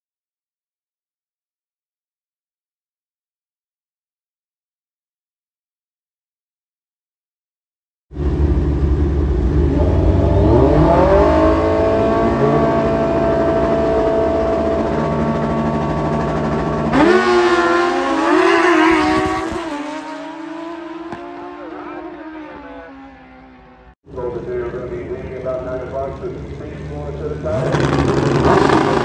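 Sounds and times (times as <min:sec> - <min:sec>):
motorcycle engines at full throttle: 0:08.2 - 0:29.0.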